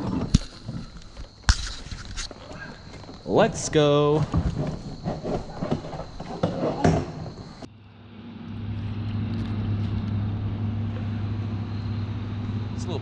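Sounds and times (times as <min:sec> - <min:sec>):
knocks and clatter: 0:00.0 - 0:07.7
low engine-like hum: 0:07.6 - 0:13.0.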